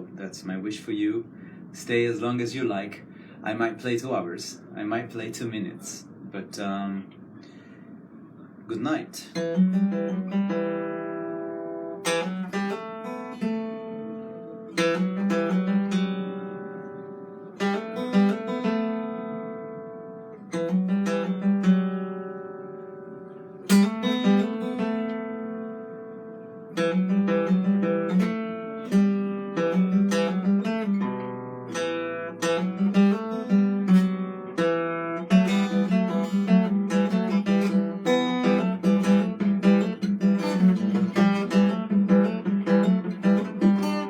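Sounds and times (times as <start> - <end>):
plucked string instrument chords: 9.4 - 44.0.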